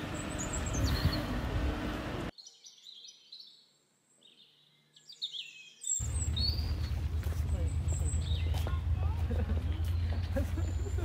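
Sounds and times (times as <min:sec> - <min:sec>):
small birds chirping: 0:00.0 - 0:01.5, 0:02.3 - 0:11.0
steady low hum: 0:00.0 - 0:02.3.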